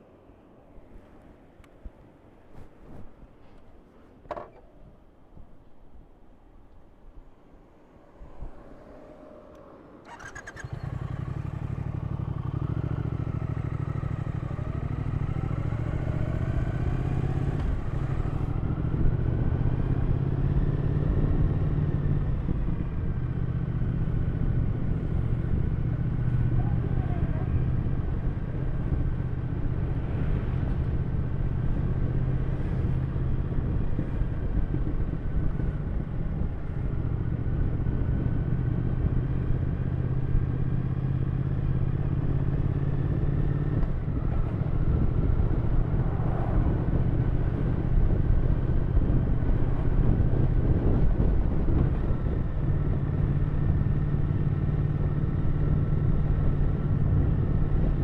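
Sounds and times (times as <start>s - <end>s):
motorcycle engine running: 10.1s - 58.0s.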